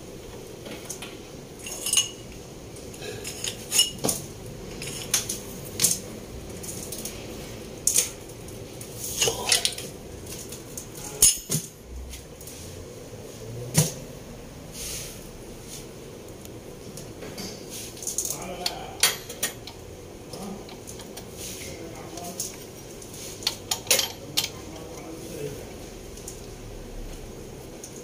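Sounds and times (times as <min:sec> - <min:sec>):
metal tools clinking and knocking: 0:01.6 - 0:02.2, 0:03.2 - 0:06.0, 0:23.4 - 0:24.7.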